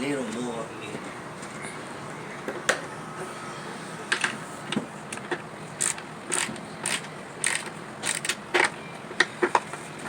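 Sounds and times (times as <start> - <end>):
ratchet wrench clicking: 5.8 - 8.7.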